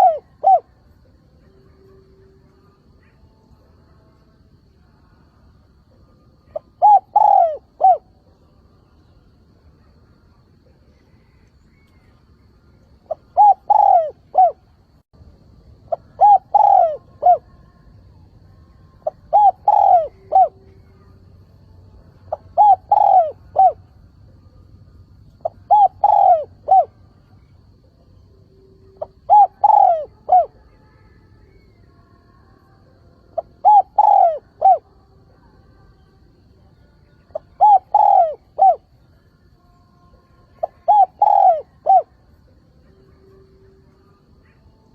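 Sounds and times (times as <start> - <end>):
dove cooing: 0.0 - 0.8, 6.5 - 8.3, 13.0 - 14.7, 15.8 - 17.6, 19.0 - 21.1, 22.3 - 23.9, 25.4 - 28.0, 28.9 - 30.7, 33.4 - 34.9, 37.3 - 38.9, 40.5 - 42.2.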